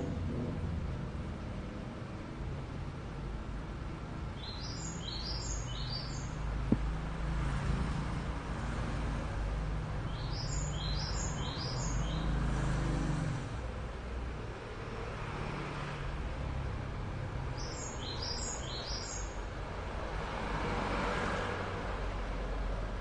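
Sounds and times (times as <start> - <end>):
bird chirping: 4.4 - 6.4, 10.1 - 12.4, 17.6 - 19.4.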